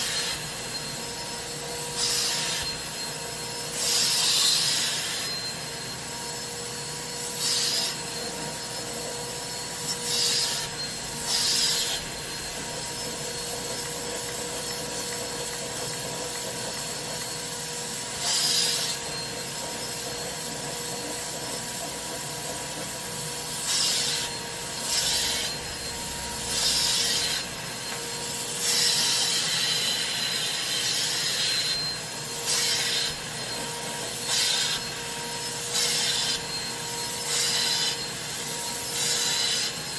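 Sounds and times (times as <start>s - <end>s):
extraction machine whine: 22.6s - 30.1s
hissing suction strokes: 24.8s - 28.8s.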